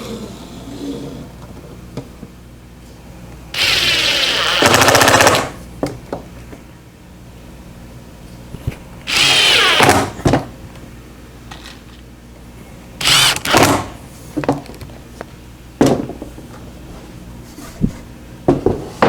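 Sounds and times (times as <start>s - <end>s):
power drill running: 3.6s - 5.6s, 9.1s - 10.2s, 13.0s - 14.0s.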